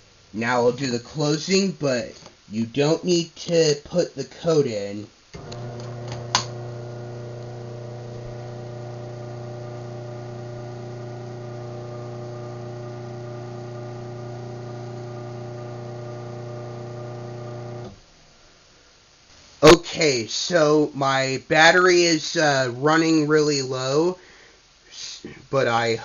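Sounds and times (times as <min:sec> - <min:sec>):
garage door opener click: 0:05.4 - 0:06.8
garage door opener motor hum: 0:05.4 - 0:18.0.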